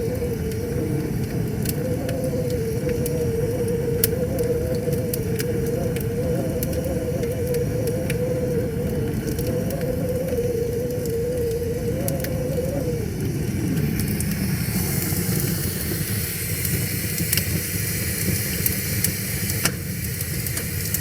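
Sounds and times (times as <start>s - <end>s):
wavering hum: 0.0s - 16.1s
wood fire crackling: 0.0s - 21.0s.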